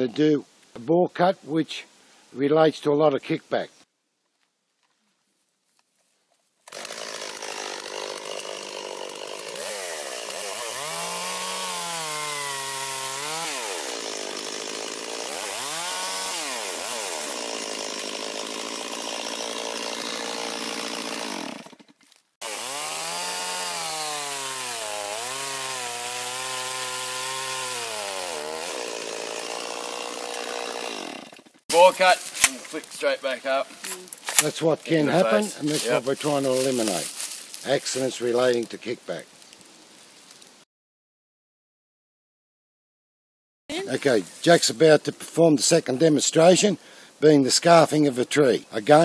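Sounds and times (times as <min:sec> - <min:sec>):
chainsaw cutting into wood: 0:06.6 - 0:32.8.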